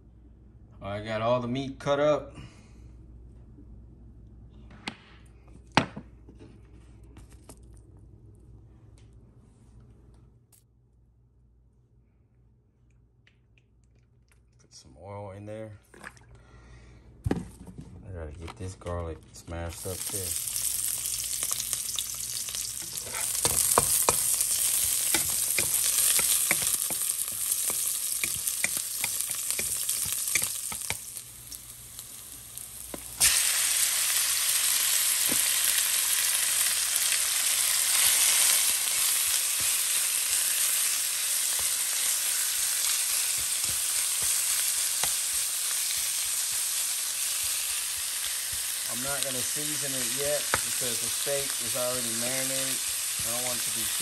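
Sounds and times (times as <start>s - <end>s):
garlic sizzling in hot oil: 19.8s - 54.0s
wooden spatula stirring meat: 22.8s - 31.2s.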